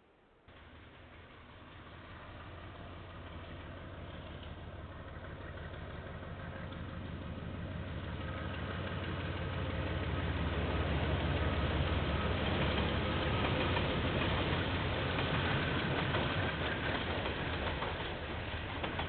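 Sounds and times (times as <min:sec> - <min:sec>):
diesel locomotive engine drone: 0:00.0 - 0:19.0.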